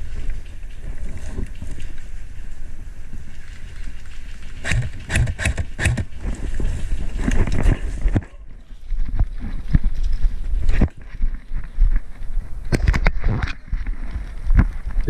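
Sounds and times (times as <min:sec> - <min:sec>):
wind noise: 0:00.0 - 0:15.0
sharp clicks or knocks: 0:04.6 - 0:06.1
camera handling rumble: 0:04.6 - 0:08.3, 0:09.0 - 0:15.0.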